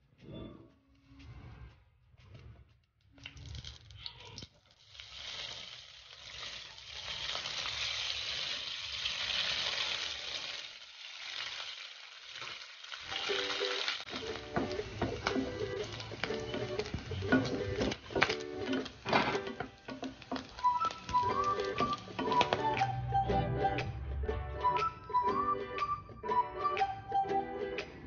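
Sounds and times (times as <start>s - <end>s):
ham sizzling in a pan: 4.5s - 22.8s
background music: 13.2s - 28.0s.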